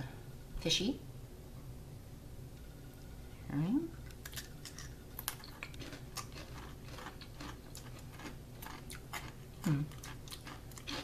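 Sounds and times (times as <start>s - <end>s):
crunching pretzel snacks: 4.1s - 11.0s.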